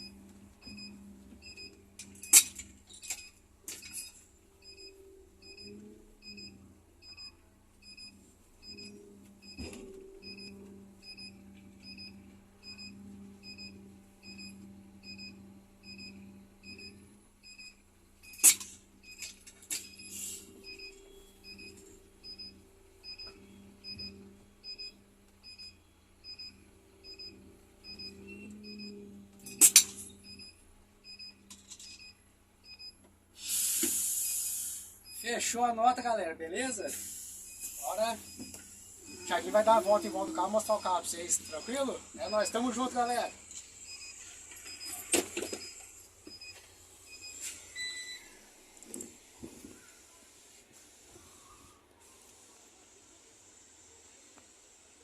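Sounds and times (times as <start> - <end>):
reversing beeper: 3.9 - 7.3, 7.9 - 17.7, 37.5 - 45.8.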